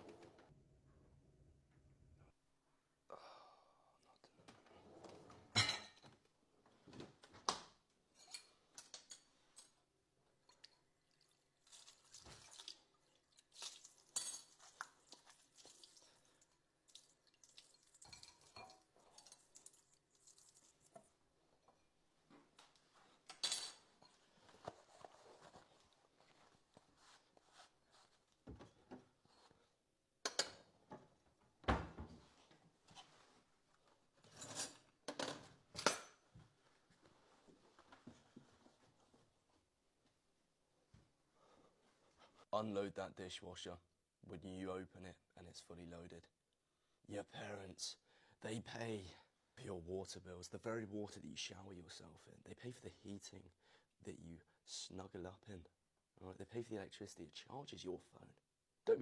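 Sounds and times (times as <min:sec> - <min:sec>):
dishes and cutlery clinking: 0:05.5 - 0:06.1, 0:18.0 - 0:19.4.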